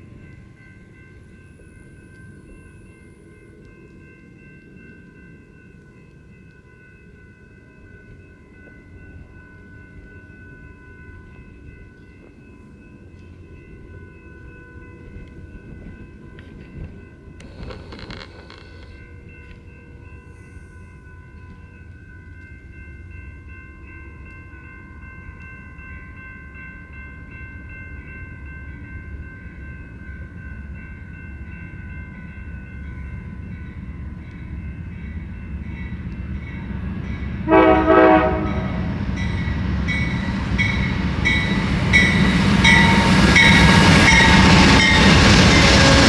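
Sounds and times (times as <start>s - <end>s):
locomotive bell ringing: 0.0s - 46.0s
diesel train rumbling: 14.9s - 19.6s, 33.0s - 46.0s
locomotive horn blasts: 37.4s - 39.0s.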